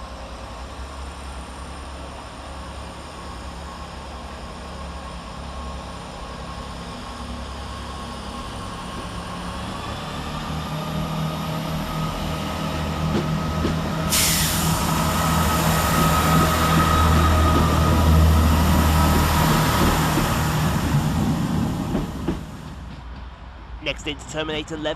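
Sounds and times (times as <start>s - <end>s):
diesel train engine rumbling: 0.0s - 24.9s
loud hiss: 14.1s - 16.4s.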